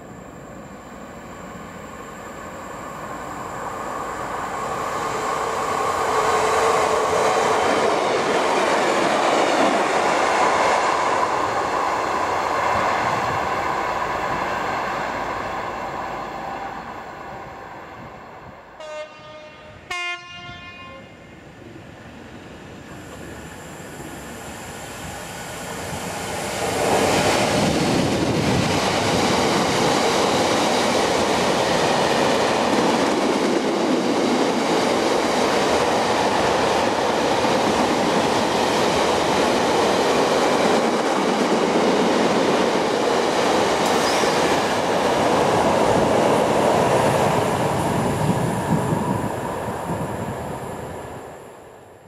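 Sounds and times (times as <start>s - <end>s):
diesel locomotive passing: 0.0s - 52.0s.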